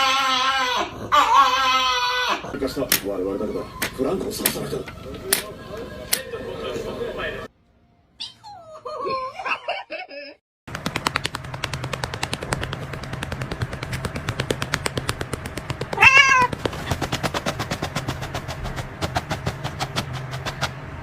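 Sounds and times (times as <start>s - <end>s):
fast sharp clicks: 10.7s - 20.8s
cat meowing: 15.9s - 16.5s.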